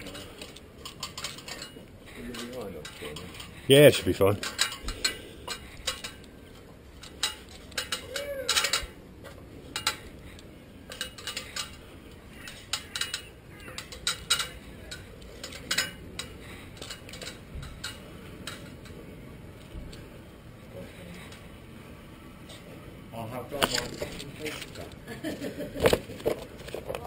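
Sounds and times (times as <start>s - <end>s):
hands tapping and scraping concrete: 25.8s - 27.0s.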